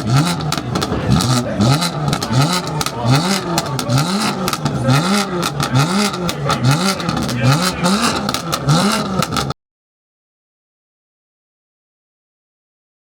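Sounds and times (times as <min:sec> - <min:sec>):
car engine revving in blips: 0:00.0 - 0:09.6
exhaust clicks and pops: 0:00.0 - 0:09.6.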